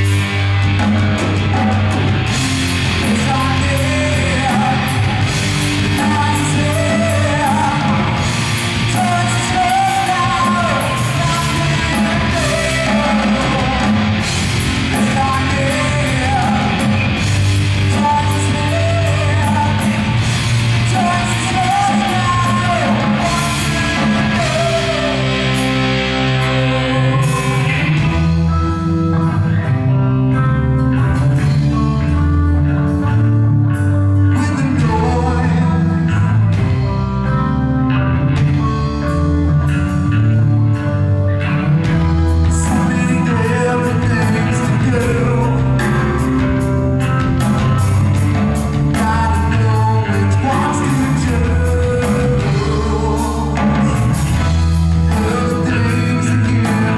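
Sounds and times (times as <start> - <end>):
rock band playing: 0.0 - 56.9.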